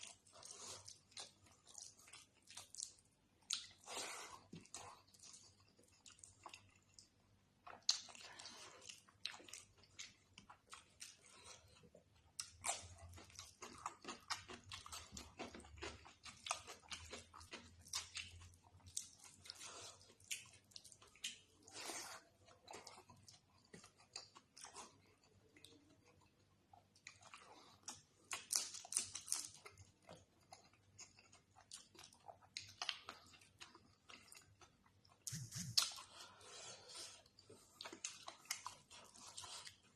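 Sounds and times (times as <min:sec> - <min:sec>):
person chewing food: 0:00.0 - 0:39.9
food crunching: 0:04.5 - 0:21.8.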